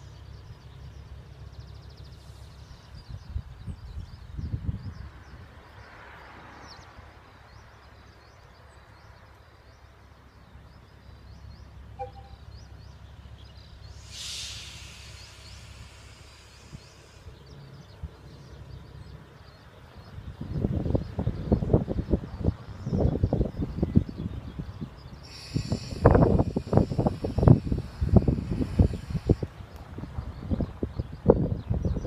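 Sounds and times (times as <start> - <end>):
short high chirps: 12.0 - 12.4
brief hiss: 13.9 - 17.3.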